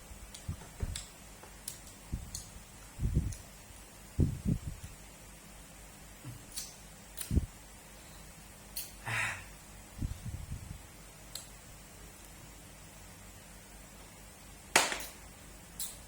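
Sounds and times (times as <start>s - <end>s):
mouth smacks and clicks: 6.2s - 7.4s, 8.7s - 9.0s, 15.8s - 16.0s
breathy hiss: 7.9s - 9.6s.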